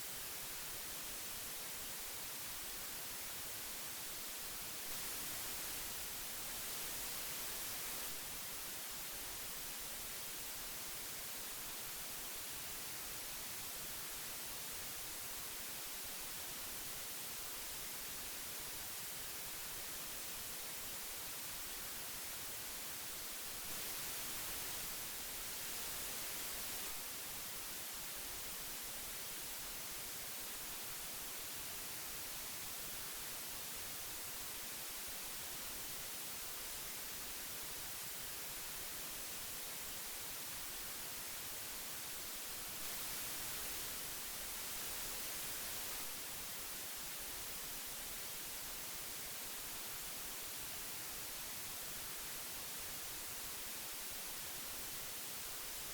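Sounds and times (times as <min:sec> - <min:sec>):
magnetic tape hiss: 0:00.0 - 0:55.9.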